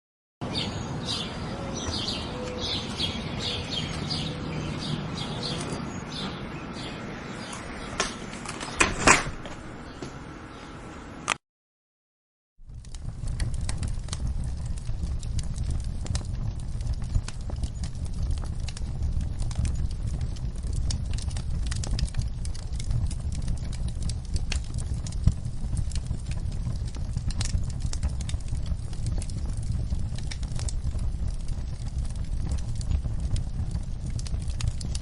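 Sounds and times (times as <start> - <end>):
wood fire crackling and popping: 2.1 - 6.2, 12.6 - 35.0
low rumble: 12.6 - 35.0.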